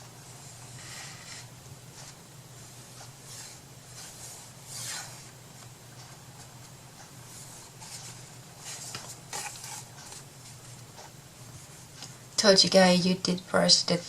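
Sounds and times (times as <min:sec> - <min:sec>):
steady low hum: 0:00.0 - 0:14.0
scratchy rubbing strokes: 0:00.7 - 0:05.3.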